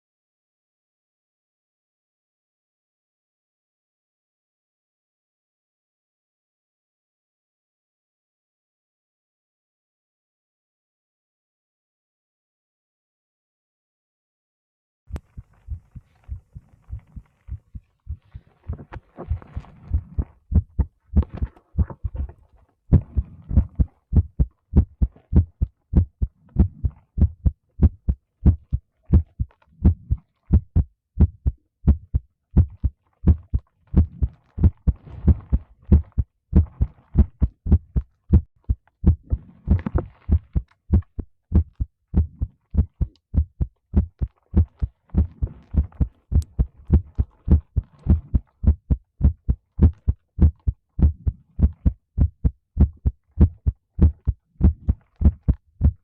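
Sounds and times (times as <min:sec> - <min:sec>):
heartbeat thumps: 0:15.1 - 0:56.0.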